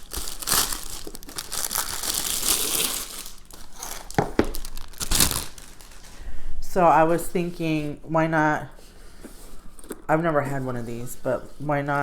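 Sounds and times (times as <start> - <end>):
plastic packaging crinkling and tearing: 0.0 - 6.3.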